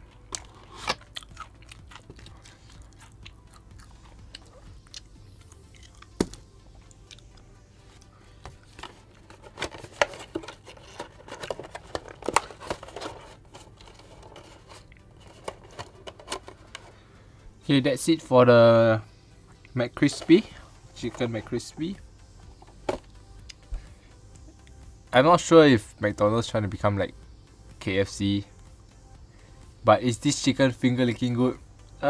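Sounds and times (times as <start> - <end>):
chewing crispy fried chicken: 0.4 - 6.1
paperboard box clicks and rustles: 8.7 - 16.9.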